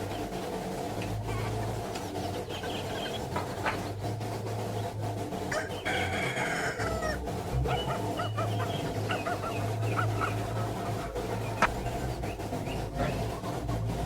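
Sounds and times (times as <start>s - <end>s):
steady low hum: 0.0s - 14.0s
long bird call: 5.5s - 13.3s.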